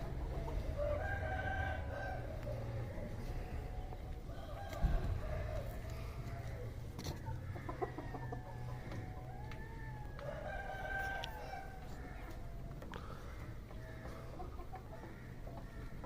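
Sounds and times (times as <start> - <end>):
chickens clucking: 0.0 - 16.0
rooster crowing: 0.8 - 2.3, 8.0 - 12.6.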